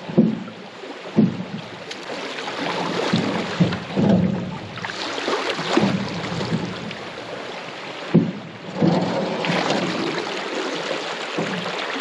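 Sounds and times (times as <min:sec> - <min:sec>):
sharp knock on canoe: 0:00.0 - 0:00.5, 0:01.1 - 0:02.0, 0:02.8 - 0:04.8, 0:05.5 - 0:07.1, 0:08.1 - 0:09.8
water splashing around paddles: 0:00.0 - 0:12.0.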